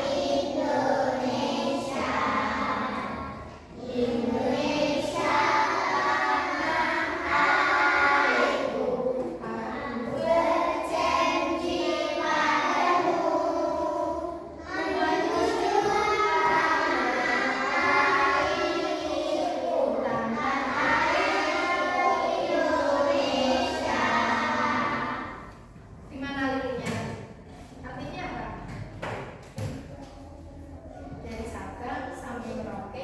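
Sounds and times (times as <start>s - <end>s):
children singing in unison: 0.0s - 25.6s.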